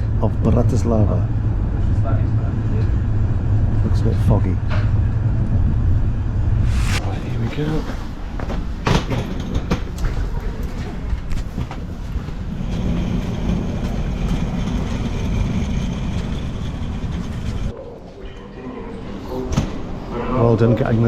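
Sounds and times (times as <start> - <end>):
steady high whine: 6.4 - 7.6
train rumbling on rails: 12.2 - 17.7.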